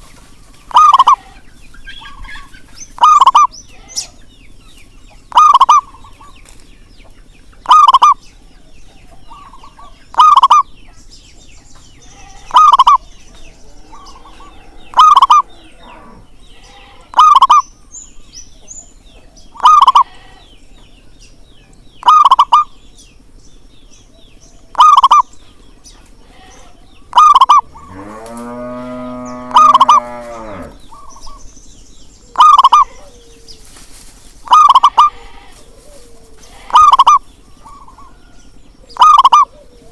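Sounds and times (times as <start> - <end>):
dove calling: 0.0 - 39.9
rooster crowing: 27.4 - 30.8.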